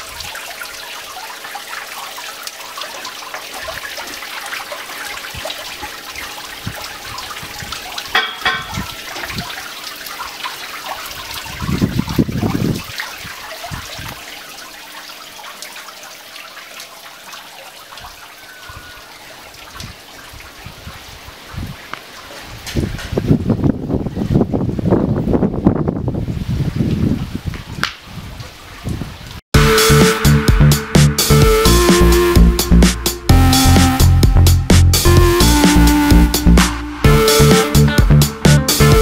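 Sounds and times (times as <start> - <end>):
water trickling and splashing: 0.0 - 29.4.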